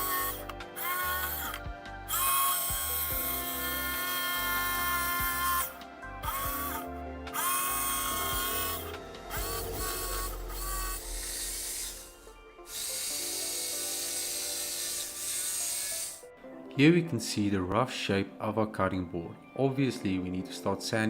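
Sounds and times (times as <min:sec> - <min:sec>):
electric jigsaw cutting wood: 0:00.0 - 0:16.2.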